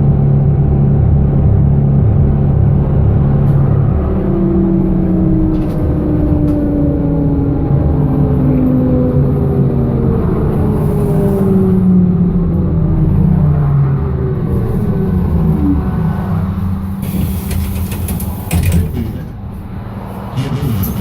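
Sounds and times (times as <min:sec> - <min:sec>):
trolleybus hum and whine: 0:00.0 - 0:21.0
sharp clicks and knocks: 0:17.0 - 0:19.4.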